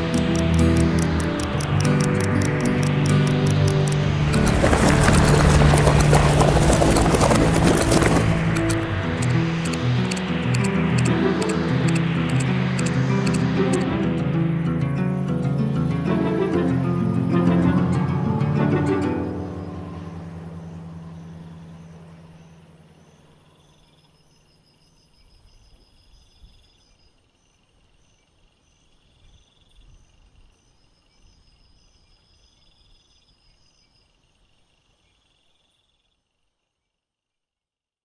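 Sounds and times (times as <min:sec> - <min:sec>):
crickets chirping: 0:00.0 - 0:13.8
music: 0:00.0 - 0:23.2.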